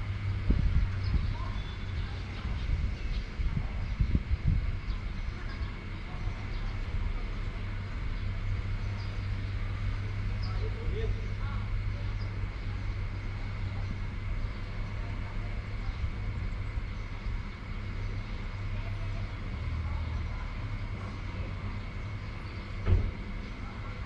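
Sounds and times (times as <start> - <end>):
outdoor rumble: 0.0 - 24.0
sharp thump: 22.8 - 23.2.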